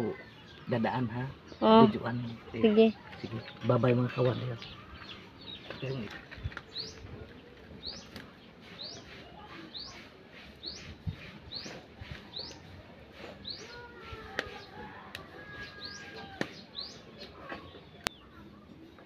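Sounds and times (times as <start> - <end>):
bird chirping: 0.0 - 7.2.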